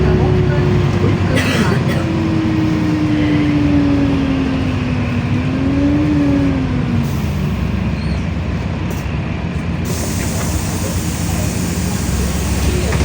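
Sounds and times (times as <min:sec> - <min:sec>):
bus engine rumble with whine: 0:00.0 - 0:13.0.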